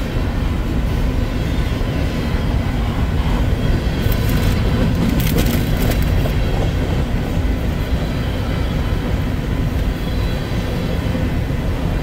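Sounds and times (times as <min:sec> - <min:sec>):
freight train rumbling past: 0:00.0 - 0:12.0.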